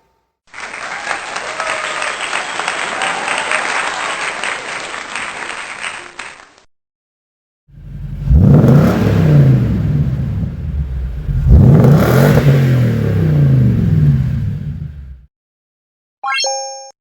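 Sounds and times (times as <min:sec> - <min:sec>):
truck engine revving: 0:07.8 - 0:15.2.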